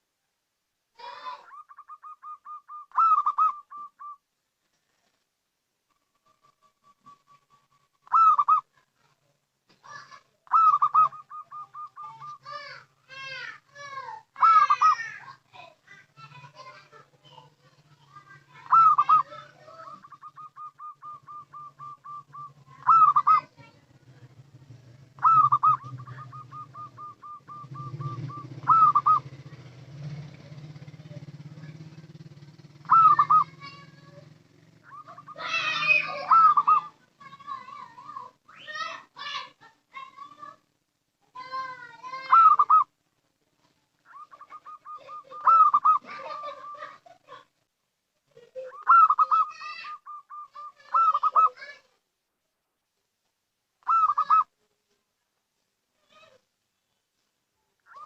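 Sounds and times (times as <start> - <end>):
dove cooing: 1.0 - 4.2, 5.9 - 8.8, 9.9 - 39.4, 41.4 - 42.9, 44.1 - 47.4, 48.4 - 51.8, 53.8 - 54.5.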